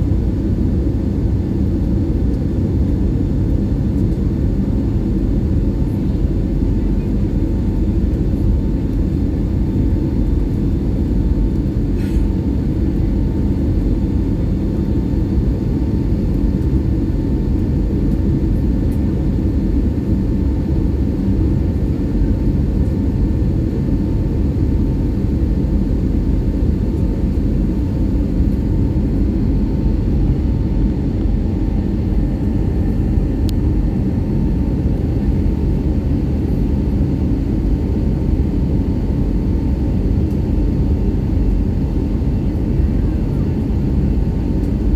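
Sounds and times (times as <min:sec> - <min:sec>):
jet engine rumble in cabin: 0:00.0 - 0:44.9
faint steady whine: 0:24.1 - 0:44.9.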